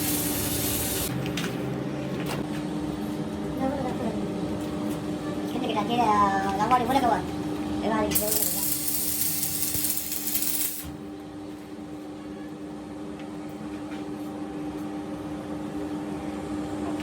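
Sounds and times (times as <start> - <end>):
loud air hiss: 0.0 - 1.1
steady mechanical hum: 0.0 - 17.0.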